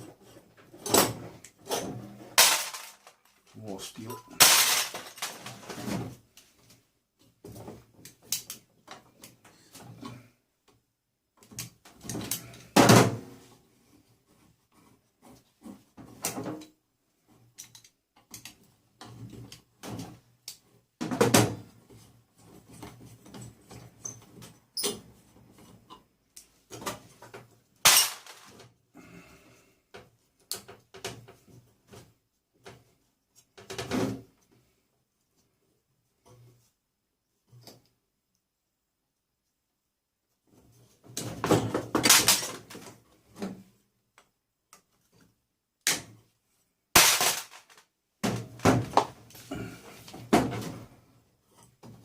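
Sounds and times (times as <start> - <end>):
metal parts knocking and rattling: 0.8 - 3.5, 4.1 - 5.9, 26.7 - 28.6, 41.2 - 42.8, 47.0 - 48.6.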